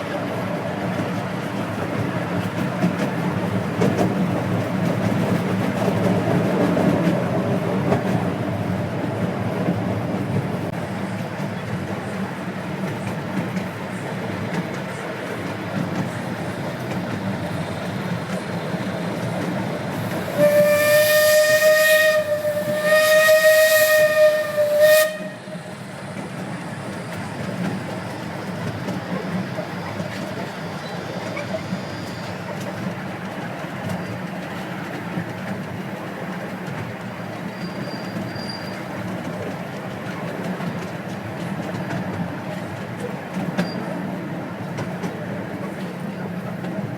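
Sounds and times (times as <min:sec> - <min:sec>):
steam whistle blasts: 0:20.0 - 0:25.8.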